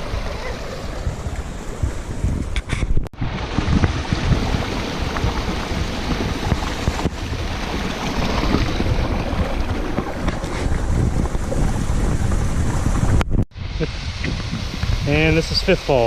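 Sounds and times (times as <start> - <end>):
wind buffeting microphone: 0.0 - 16.0
waterfall rushing: 3.2 - 10.6.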